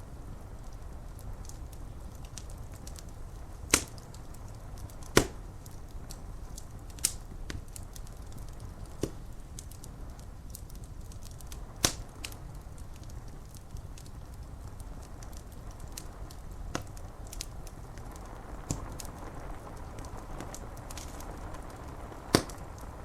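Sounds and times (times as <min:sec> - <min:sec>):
wood fire crackling: 0:00.0 - 0:23.0
rain rushing: 0:00.1 - 0:23.0
sharp pops from fire: 0:00.1 - 0:23.0.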